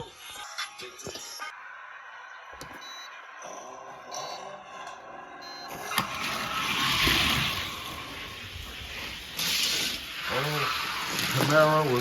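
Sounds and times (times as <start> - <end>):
toy cars rolling down a track: 5.7 - 12.0.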